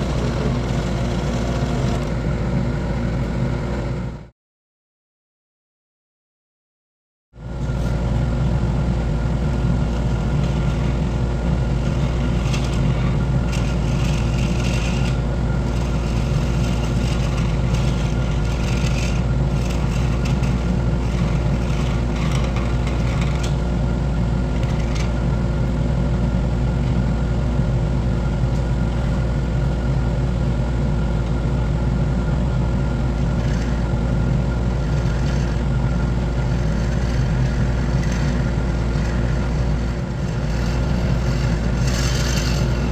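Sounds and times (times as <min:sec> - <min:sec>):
tool scraping spinning wood: 0:00.0 - 0:04.0, 0:07.6 - 0:25.8, 0:31.1 - 0:42.9
wood lathe motor hum: 0:00.0 - 0:04.1, 0:08.2 - 0:25.8, 0:31.1 - 0:42.9.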